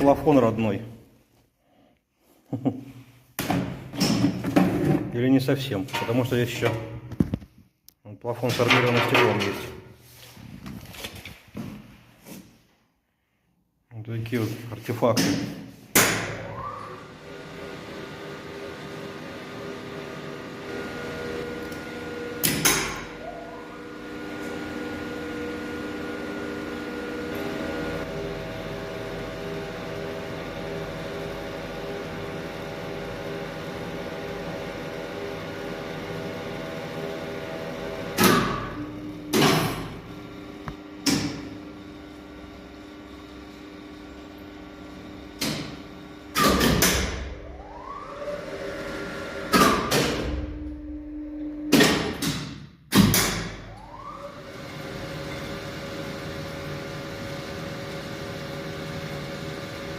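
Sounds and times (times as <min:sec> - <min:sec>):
short rising whine: 0:47.4 - 0:49.0.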